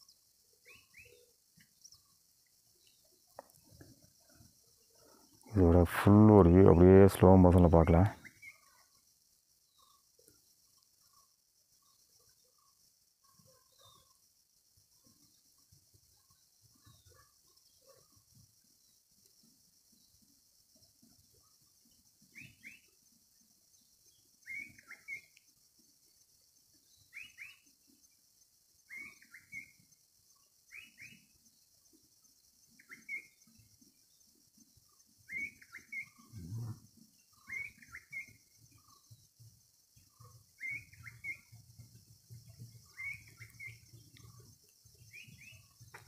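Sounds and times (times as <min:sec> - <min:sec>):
bird calling: 0:35.3 - 0:36.4, 0:37.4 - 0:39.0, 0:40.6 - 0:41.5, 0:42.8 - 0:44.4
faint low rumble: 0:36.3 - 0:36.8.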